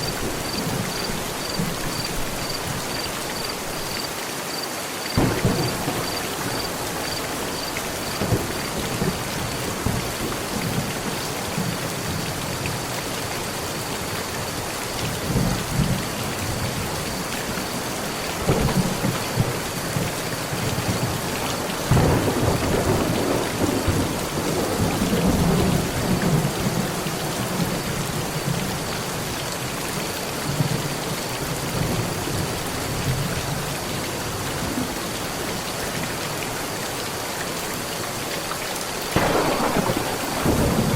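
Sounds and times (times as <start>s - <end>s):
heavy rain on a metal roof: 0.0s - 40.9s
rolling thunder: 5.2s - 10.9s, 18.4s - 27.6s, 39.2s - 40.9s.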